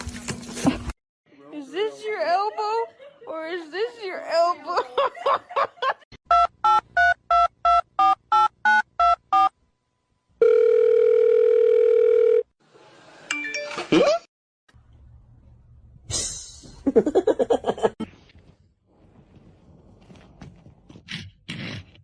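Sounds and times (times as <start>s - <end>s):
steady telephone tone: 10.4s - 12.5s.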